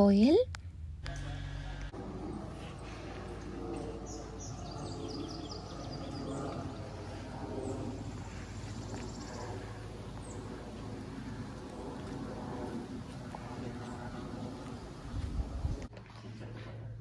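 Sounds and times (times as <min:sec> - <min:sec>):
steady low rumble: 0:00.0 - 0:17.0
small birds chirping: 0:02.2 - 0:15.8.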